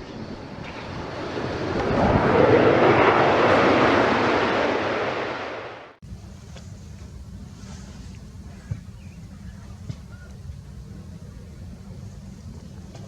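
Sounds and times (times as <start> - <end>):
aircraft roaring past: 0.0 - 6.0
low steady rumble: 0.0 - 13.0.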